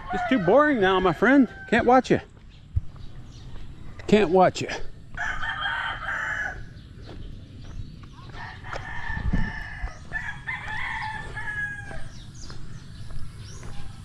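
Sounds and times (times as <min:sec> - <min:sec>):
rooster crowing: 0:00.0 - 0:01.9, 0:05.1 - 0:06.7, 0:08.3 - 0:12.2.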